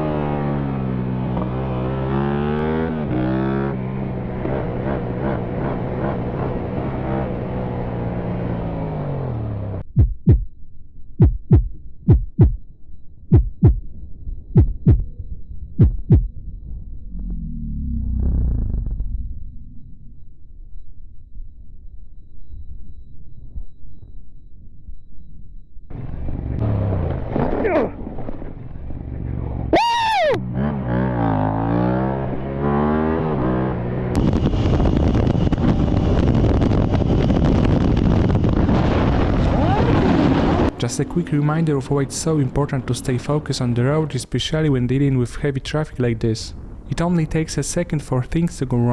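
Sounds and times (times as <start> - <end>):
vehicle engine revving: 0.0 - 9.9, 15.8 - 19.6, 25.9 - 29.8, 30.4 - 41.4
heartbeat thumps: 9.8 - 10.5, 11.2 - 12.7, 13.3 - 13.9, 14.5 - 16.4
wind noise: 33.8 - 48.9.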